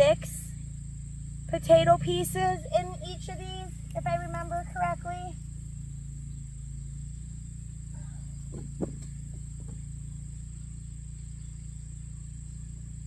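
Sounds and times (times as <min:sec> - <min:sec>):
insects chirring: 0:00.0 - 0:13.0
low hum: 0:00.0 - 0:13.0
brief knocks: 0:08.4 - 0:09.8.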